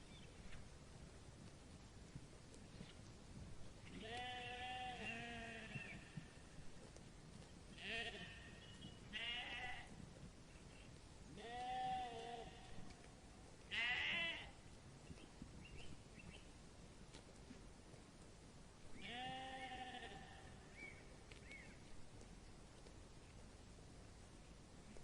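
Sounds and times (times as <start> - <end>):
animal bleating: 3.9 - 6.4, 7.7 - 10.0, 11.3 - 13.0, 13.7 - 14.6, 19.0 - 20.6.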